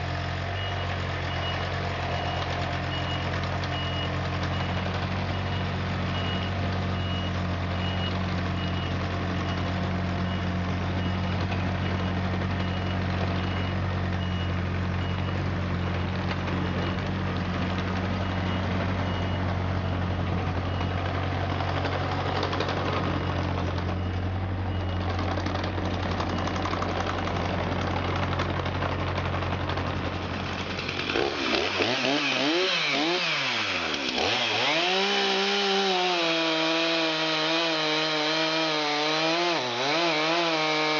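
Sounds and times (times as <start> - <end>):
excavator diesel engine running: 0.0 - 40.9
engine revving: 24.8 - 40.9.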